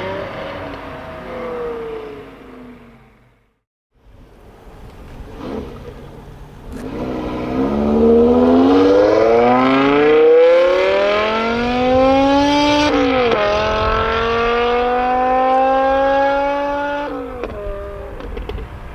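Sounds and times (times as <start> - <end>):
car engine accelerating hard: 5.2 - 18.1.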